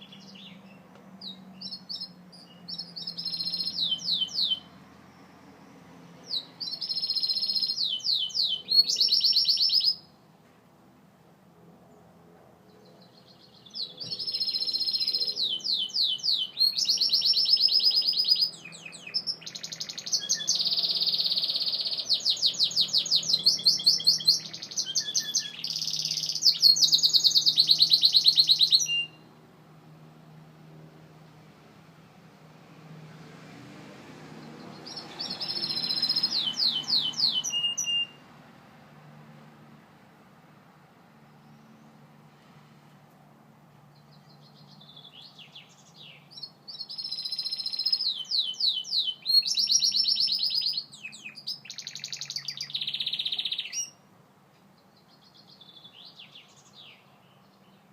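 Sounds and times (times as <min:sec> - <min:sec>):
canary trilling song: 0:00.0 - 0:10.2, 0:12.8 - 0:29.3, 0:34.4 - 0:38.4, 0:43.9 - 0:54.1.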